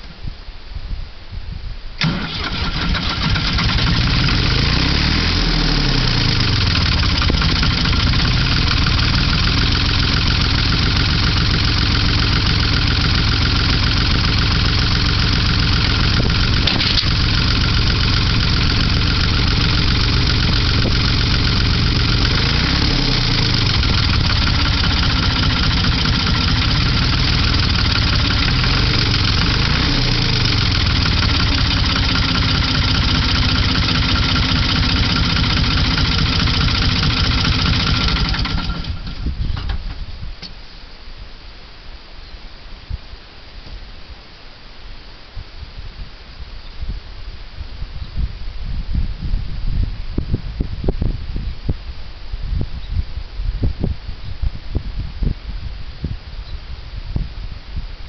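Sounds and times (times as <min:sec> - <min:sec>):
diesel tractor engine running: 0:02.0 - 0:40.0.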